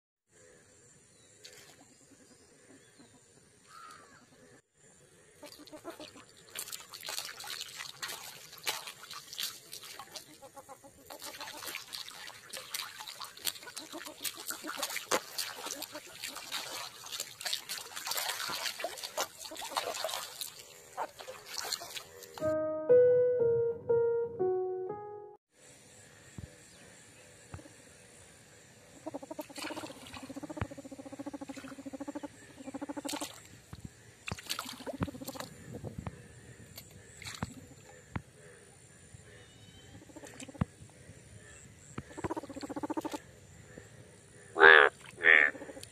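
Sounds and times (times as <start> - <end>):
water splashing: 5.6 - 22.4, 29.2 - 32.2, 34.2 - 35.6
trickling water: 6.1 - 22.4
piano music jingle: 22.4 - 25.4
frogs croaking: 26.0 - 45.9.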